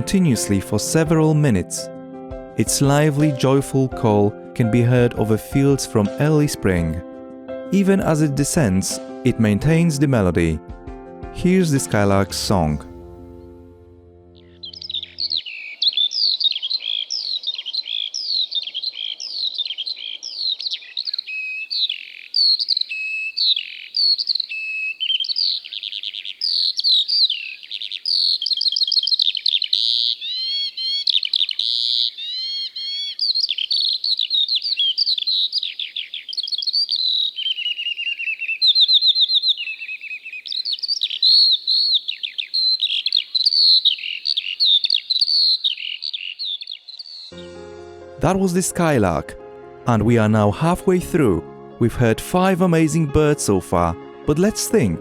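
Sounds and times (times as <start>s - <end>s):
skylark singing: 0.0s - 1.9s, 2.6s - 7.0s, 14.4s - 47.4s.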